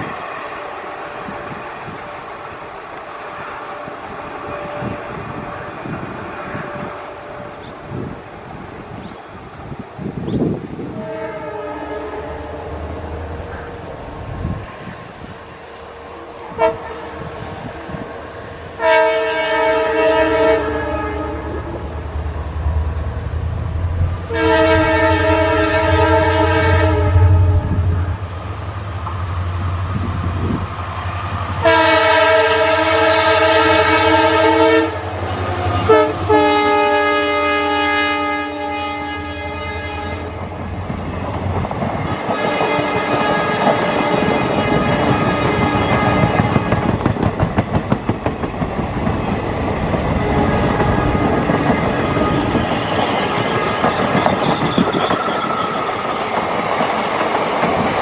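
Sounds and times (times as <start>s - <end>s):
low rumble of train: 0.0s - 58.0s
locomotive horn blasts: 10.9s - 13.0s, 16.5s - 17.5s, 18.8s - 22.0s, 24.3s - 28.3s, 31.6s - 40.5s, 42.1s - 46.9s.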